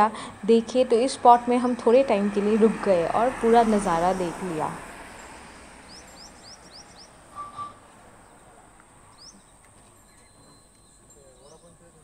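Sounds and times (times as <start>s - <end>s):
faint outdoor hiss: 0.0s - 12.0s
small bird chirping: 5.2s - 8.5s, 9.1s - 12.0s.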